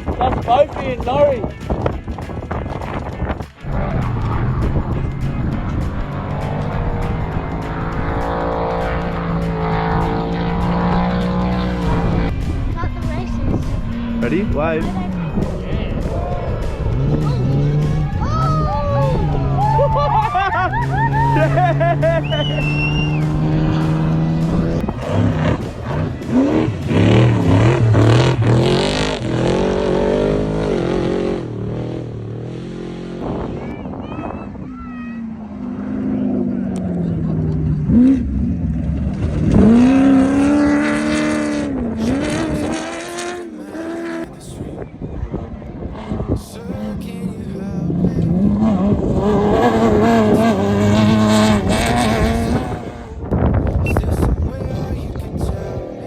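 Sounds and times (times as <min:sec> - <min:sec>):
race vehicle engines revving: 0:00.0 - 0:56.0.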